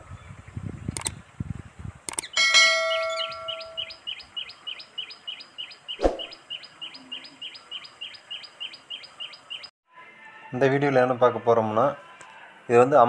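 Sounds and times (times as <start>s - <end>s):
sharp click: 0.9s - 1.2s, 2.1s - 2.4s
bird chirping: 2.1s - 9.7s
bell-like notification chime: 2.4s - 3.9s.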